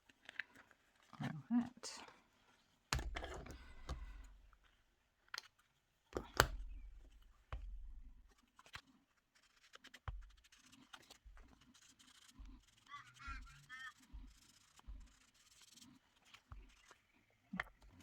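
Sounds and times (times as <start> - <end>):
taps and knocks on table: 3.0 - 4.2
paper handling: 5.3 - 18.0
light scratching: 6.2 - 18.0.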